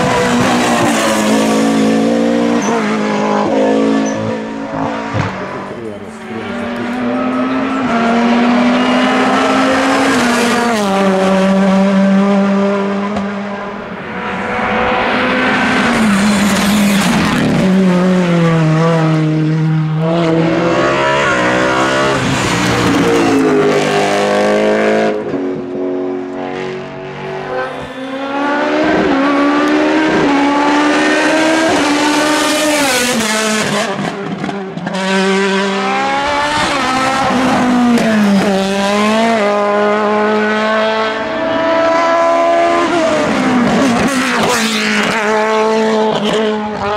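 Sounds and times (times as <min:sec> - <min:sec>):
race car engines at high revs: 0:00.0 - 0:46.9.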